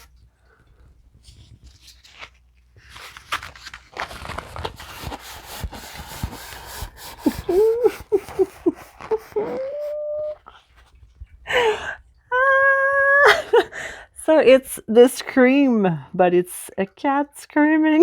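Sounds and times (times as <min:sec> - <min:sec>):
plastic packaging rustling: 0:00.0 - 0:11.0
woman's voice bending sounds: 0:07.2 - 0:10.5.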